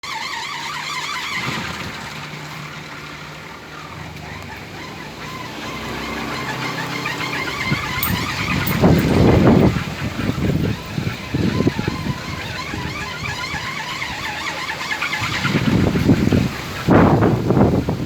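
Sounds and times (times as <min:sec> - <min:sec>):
wooden windmill droning hum: 0:00.1 - 0:18.0
rough rumble: 0:07.6 - 0:17.9.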